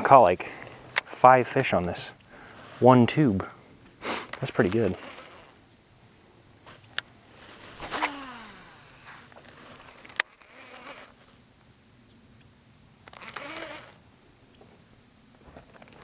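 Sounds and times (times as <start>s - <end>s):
flying insect buzzing past: 7.4s - 11.5s, 13.1s - 14.0s.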